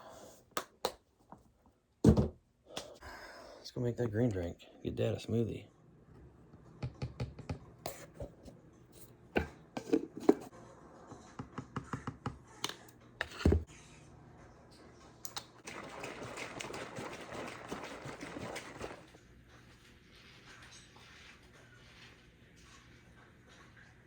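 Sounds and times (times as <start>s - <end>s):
kitchen things clattering: 7.9s - 10.5s, 15.6s - 19.2s.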